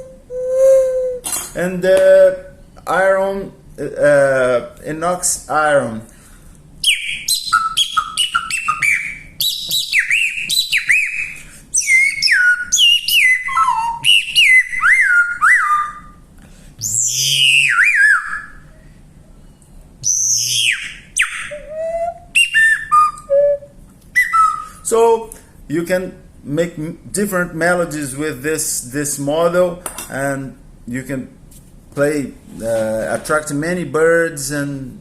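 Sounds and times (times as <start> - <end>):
bird-call whistle chirping: 6.8 - 16.2, 16.8 - 18.7, 20.0 - 24.8.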